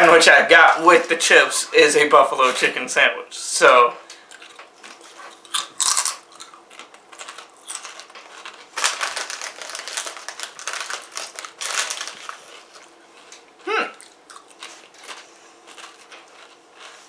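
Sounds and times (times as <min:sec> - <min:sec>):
chewing chips crunching: 0:04.2 - 0:17.0
potato chips crackling when handled: 0:04.9 - 0:13.4.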